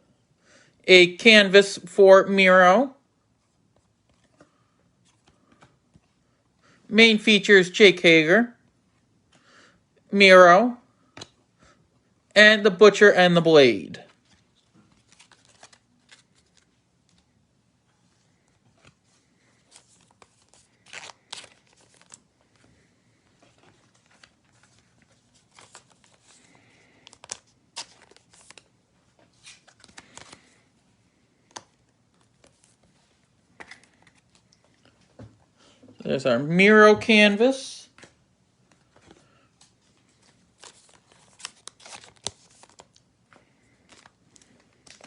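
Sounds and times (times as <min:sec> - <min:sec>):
trading cards rustling and clicking: 0:03.8 - 0:06.2, 0:14.0 - 0:17.3, 0:18.4 - 0:30.6, 0:31.3 - 0:35.2, 0:37.9 - 0:45.0.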